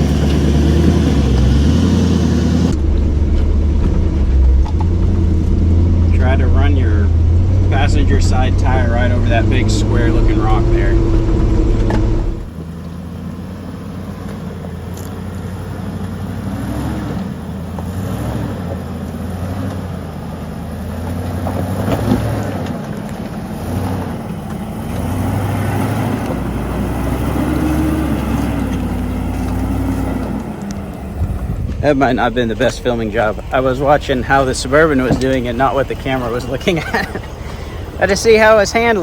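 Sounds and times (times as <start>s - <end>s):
vehicle engine at low revs: 0.0s - 39.0s
knocks and rattles: 26.3s - 39.0s.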